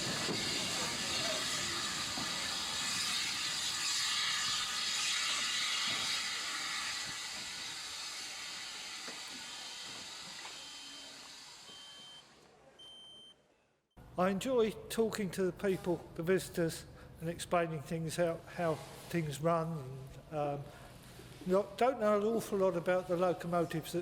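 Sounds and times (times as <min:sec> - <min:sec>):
steam locomotive hissing steam: 0:00.0 - 0:12.3.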